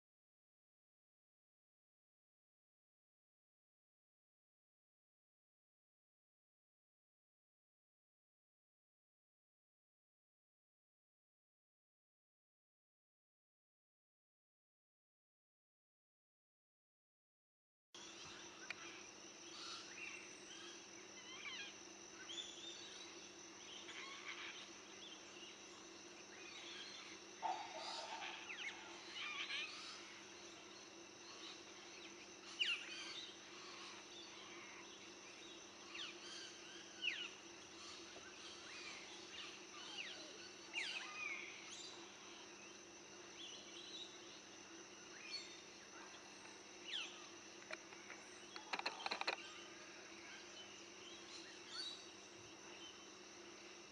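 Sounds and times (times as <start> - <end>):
birds chirping: 22.3 - 42.4, 45.2 - 53.1.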